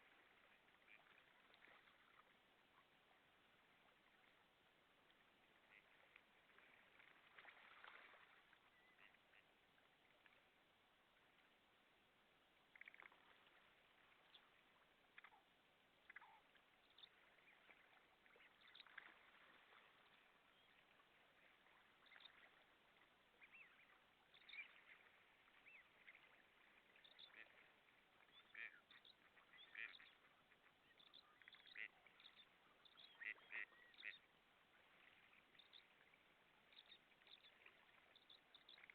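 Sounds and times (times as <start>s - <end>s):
faint bird calls: 12.6s - 38.9s.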